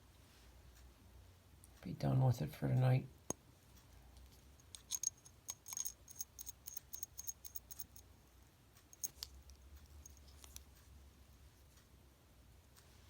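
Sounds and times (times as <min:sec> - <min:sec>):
wristwatch metallic clicks: 0:04.6 - 0:08.0, 0:08.9 - 0:10.7.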